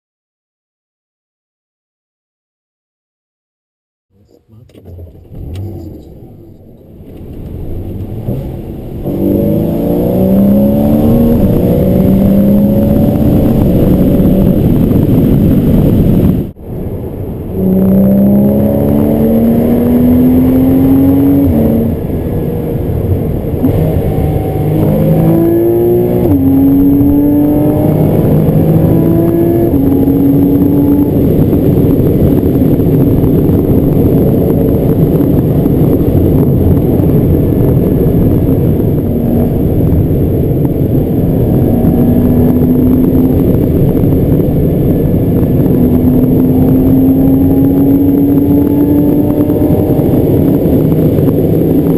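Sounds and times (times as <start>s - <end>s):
car engine accelerating: 4.1s - 51.9s.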